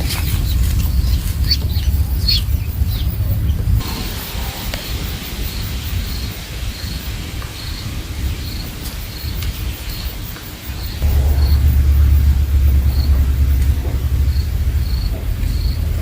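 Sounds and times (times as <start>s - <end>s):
low rumbling noise: 0.0s - 16.0s.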